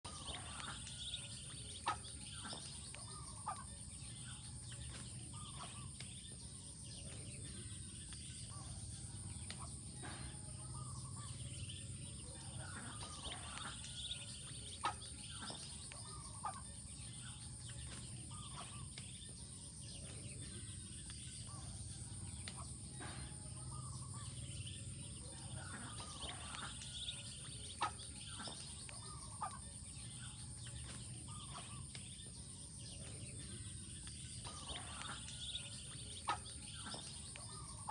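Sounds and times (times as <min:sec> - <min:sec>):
steady low hum: 0:00.0 - 0:37.9
ducklings peeping: 0:07.2 - 0:16.6, 0:33.1 - 0:37.9.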